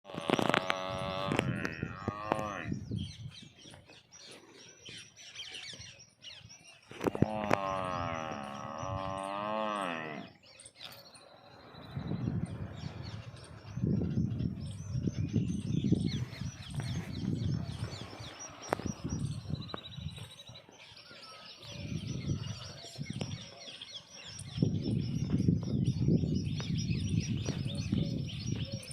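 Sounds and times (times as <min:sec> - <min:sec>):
buffalo calling: 0:00.1 - 0:02.7, 0:07.1 - 0:10.4
small birds chirping: 0:00.1 - 0:28.9.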